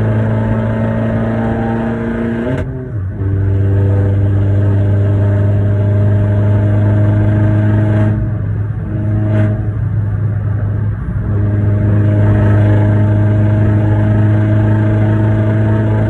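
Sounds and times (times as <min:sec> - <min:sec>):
loud car engine running: 0:00.0 - 0:16.0.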